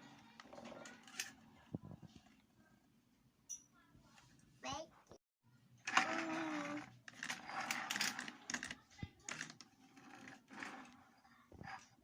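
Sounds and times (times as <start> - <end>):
plastic toys scraping and rattling: 0.0 - 1.6, 5.8 - 12.0.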